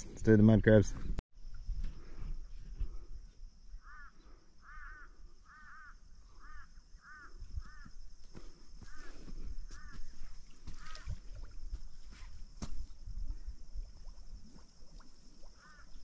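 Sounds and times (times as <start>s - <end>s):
bird calling: 3.8s - 7.9s, 8.8s - 11.2s, 15.6s - 16.0s.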